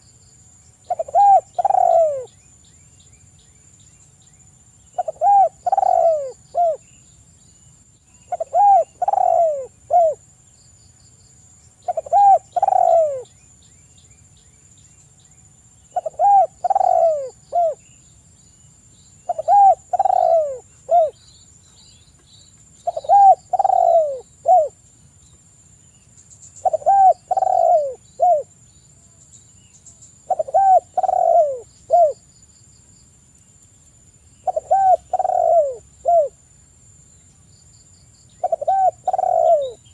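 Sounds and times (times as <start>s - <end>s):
small birds chirping: 0.0s - 36.4s, 37.0s - 39.9s
dove cooing: 0.9s - 2.3s, 5.0s - 6.8s, 8.3s - 10.2s, 11.8s - 13.3s, 15.9s - 17.8s, 19.3s - 21.2s, 22.8s - 24.8s, 26.6s - 28.5s, 30.2s - 32.2s, 34.4s - 36.4s, 38.4s - 39.9s.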